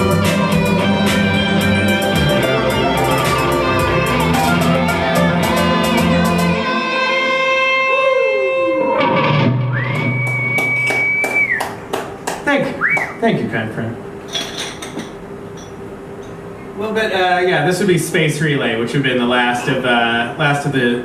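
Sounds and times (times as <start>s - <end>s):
live band with strings and beat: 0.0s - 8.2s, 8.9s - 11.6s.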